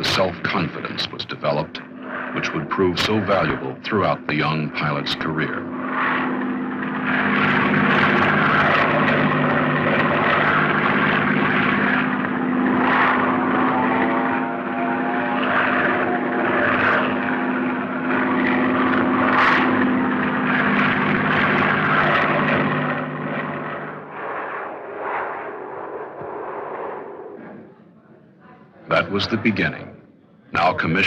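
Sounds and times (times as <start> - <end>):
airplane engine hum: 0.0 - 28.2.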